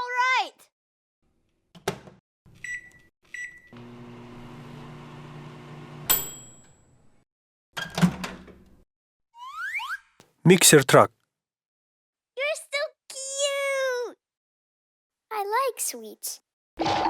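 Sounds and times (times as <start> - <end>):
microwave humming: 3.8 - 6.1.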